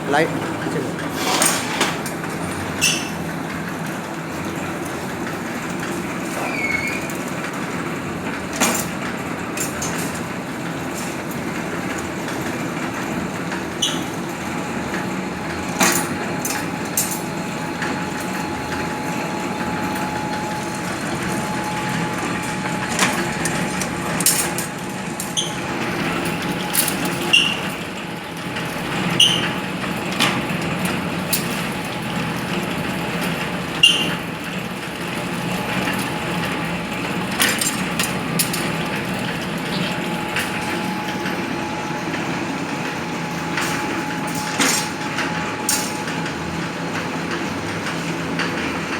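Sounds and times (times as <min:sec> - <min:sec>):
machine mechanical hum: 0:00.0 - 0:48.9.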